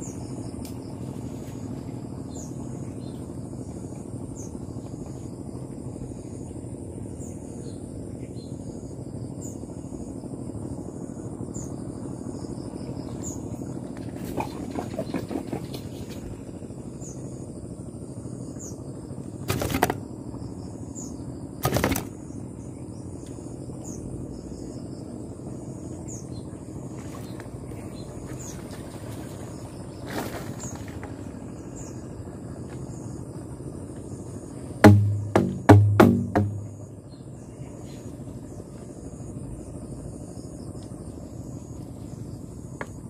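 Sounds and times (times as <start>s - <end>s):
insects chirping: 0.0s - 43.0s
short knocks: 34.8s - 36.8s
loud deep thumps: 34.8s - 36.9s.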